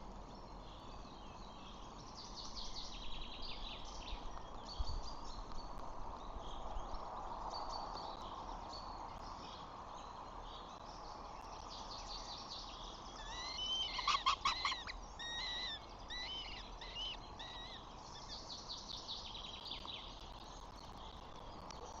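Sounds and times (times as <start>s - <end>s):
birds chirping: 12.7s - 20.1s.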